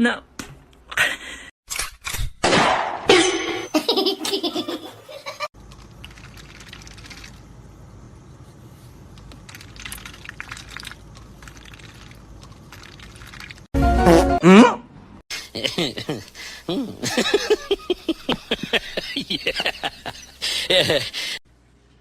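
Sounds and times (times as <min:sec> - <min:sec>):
loud pulsing laughter: 0:15.5 - 0:21.4.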